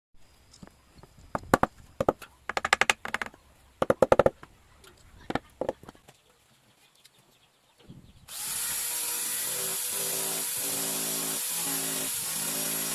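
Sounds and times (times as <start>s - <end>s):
sharp knocks on wood: 1.3s - 4.4s.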